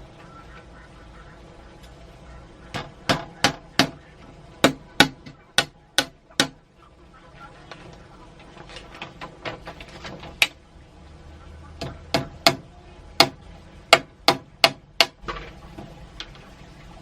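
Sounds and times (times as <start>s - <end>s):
sharp knocks: 2.7s - 4.0s.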